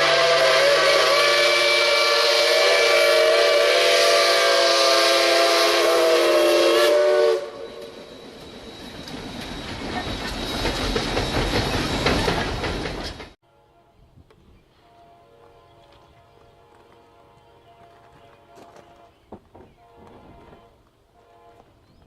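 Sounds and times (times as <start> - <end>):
locomotive air horn chord: 0.0 - 8.0, 13.4 - 14.2, 14.8 - 19.2, 19.8 - 21.8
train rumble: 0.0 - 13.4, 14.0 - 22.0.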